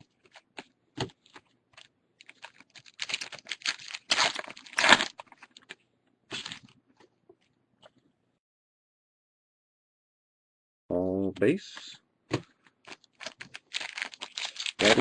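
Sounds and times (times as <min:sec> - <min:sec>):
foil pack tearing and crinkling: 0:01.8 - 0:05.6, 0:06.3 - 0:06.7, 0:12.8 - 0:15.0.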